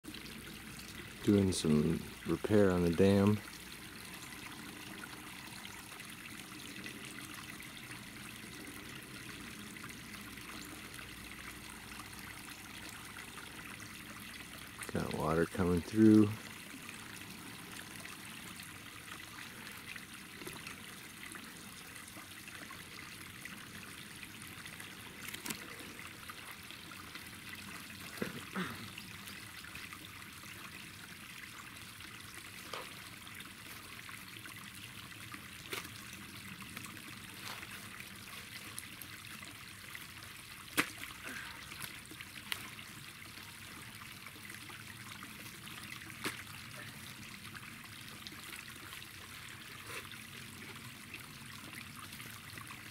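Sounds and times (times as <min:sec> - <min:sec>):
water trickling: 0:00.0 - 0:52.9
sharp knocks or splashes: 0:40.7 - 0:41.1.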